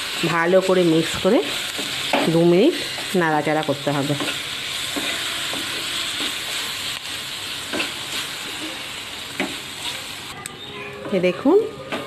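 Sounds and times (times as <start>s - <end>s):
vegetables sizzling in oil: 0.0s - 12.0s
wooden spatula scraping pan: 4.0s - 6.8s.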